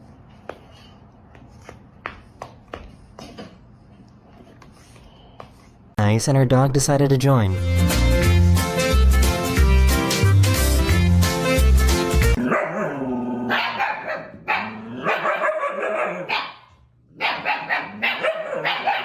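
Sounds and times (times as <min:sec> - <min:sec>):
music with heavy beat: 0:07.6 - 0:12.4.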